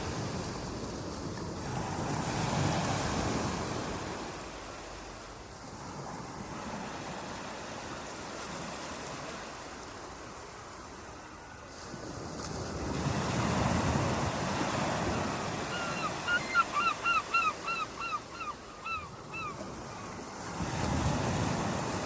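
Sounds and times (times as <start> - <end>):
waves washing in: 0.0 - 22.0.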